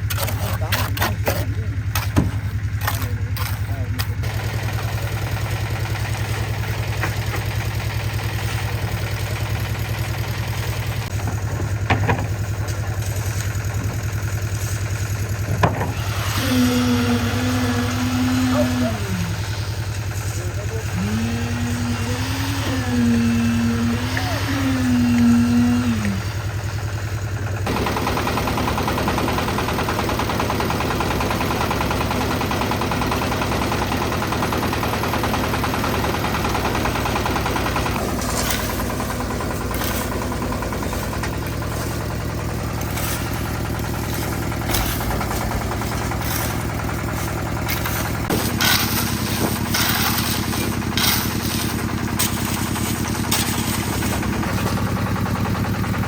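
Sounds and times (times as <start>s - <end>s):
knocks and scrapes: 0.0s - 4.1s, 38.0s - 54.8s
concrete mixer engine running: 0.0s - 56.0s.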